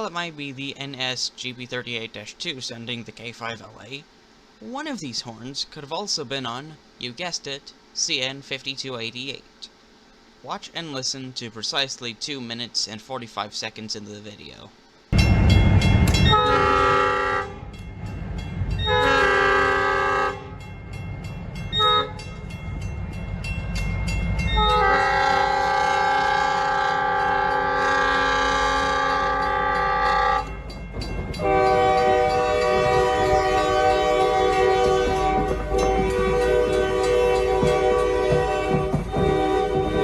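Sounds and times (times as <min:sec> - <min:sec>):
train rumbling: 0:15.1 - 0:40.0
locomotive air horn blasts: 0:16.2 - 0:17.7, 0:18.8 - 0:20.6, 0:21.8 - 0:22.2, 0:24.5 - 0:30.6, 0:31.4 - 0:40.0.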